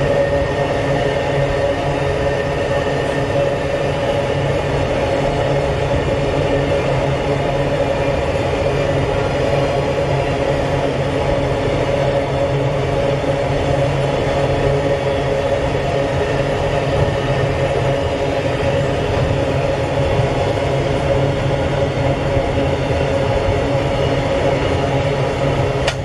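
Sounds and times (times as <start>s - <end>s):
steady hum: 0.0s - 26.0s
train wheels rumbling on rails: 0.0s - 26.0s.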